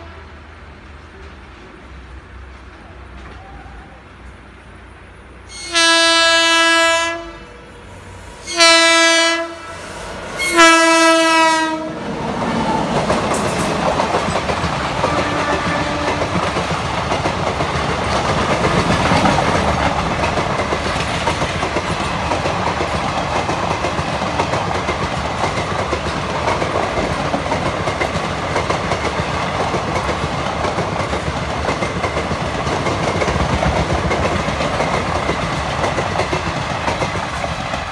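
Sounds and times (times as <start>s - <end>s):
locomotive horn blasts: 5.5s - 12.0s, 15.1s - 16.3s
train wheels clickety-clack: 10.0s - 37.9s.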